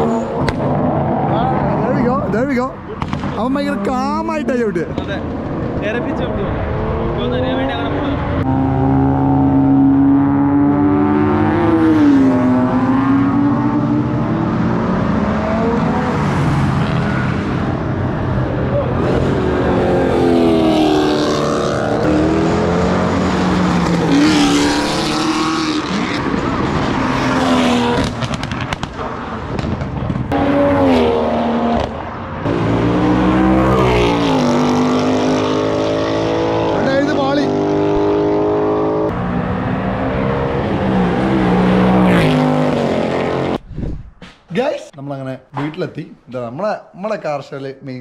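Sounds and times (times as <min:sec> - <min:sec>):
car engine revving: 0:00.0 - 0:43.6
exhaust pops and crackles: 0:02.9 - 0:03.5, 0:27.9 - 0:30.4.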